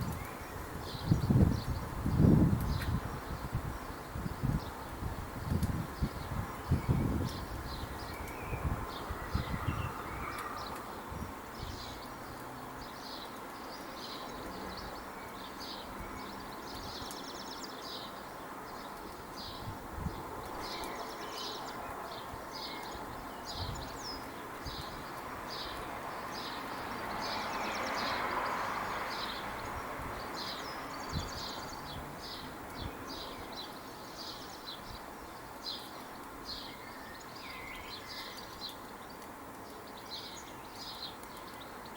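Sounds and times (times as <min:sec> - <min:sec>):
steady outdoor hiss: 0:00.0 - 0:41.9
birds chirping: 0:11.6 - 0:41.9.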